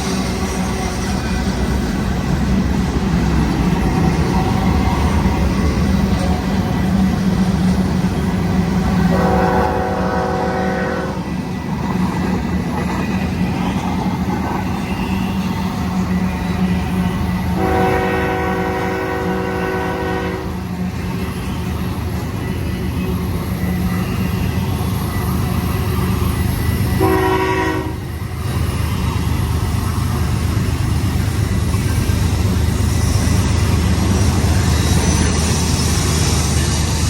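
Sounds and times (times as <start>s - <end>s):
diesel locomotives rumbling: 0.0s - 37.0s
locomotive horn blasts: 9.1s - 11.2s, 17.6s - 20.6s, 27.0s - 28.1s.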